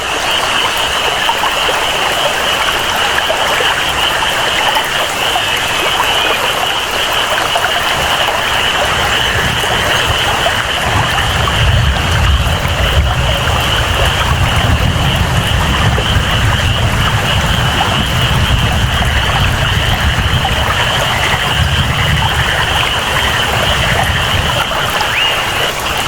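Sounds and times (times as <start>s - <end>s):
flowing water: 0.0s - 26.0s
high-pitched frog chorus: 0.0s - 26.0s
steady rain: 0.0s - 26.0s
low rumble: 8.9s - 24.7s.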